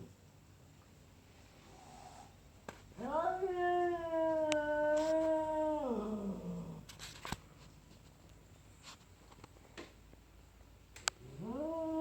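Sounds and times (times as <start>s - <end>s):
cat yowling: 3.0s - 6.5s, 11.3s - 12.0s.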